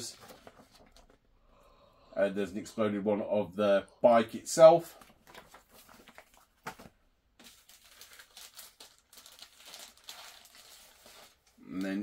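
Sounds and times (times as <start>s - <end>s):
paper pages rustling: 0.0s - 1.2s, 5.0s - 11.5s
plastic sleeve crinkling: 5.2s - 11.6s.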